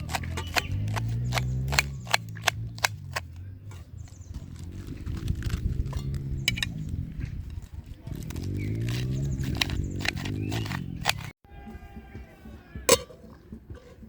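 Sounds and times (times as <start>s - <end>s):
sharp clicks or knocks: 0.0s - 3.4s, 8.5s - 11.3s.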